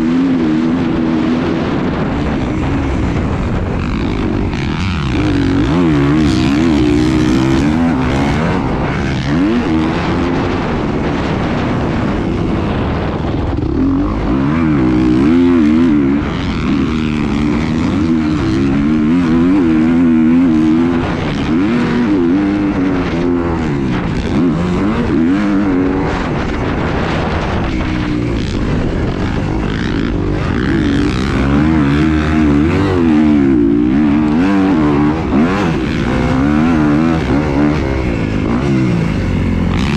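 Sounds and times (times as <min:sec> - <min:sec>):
engine running with varying pitch: 0:00.0 - 0:39.9
noisy rushing background: 0:00.0 - 0:39.9.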